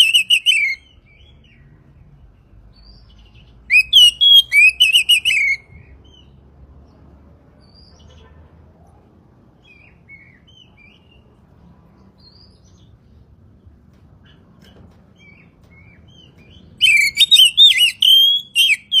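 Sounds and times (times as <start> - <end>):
bird singing whistled phrases: 0.0 - 1.4, 3.7 - 5.7, 16.8 - 19.0.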